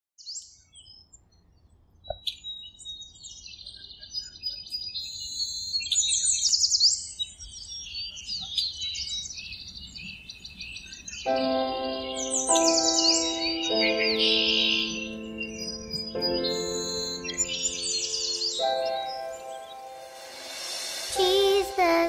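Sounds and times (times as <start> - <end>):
songbirds chirping and singing: 0.3 - 22.0.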